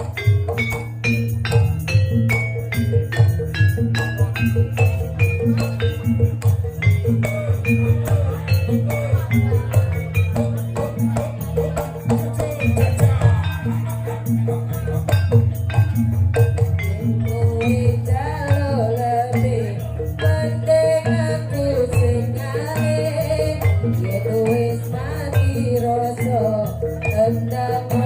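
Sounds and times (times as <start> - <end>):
bass line: 0.0 - 20.6
shaker and drum beat: 0.0 - 28.0
wavering melody line: 0.0 - 28.0.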